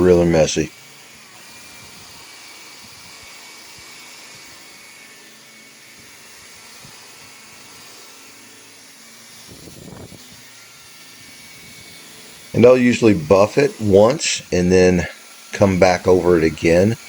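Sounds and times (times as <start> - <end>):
steady hiss: 6.8 - 17.0.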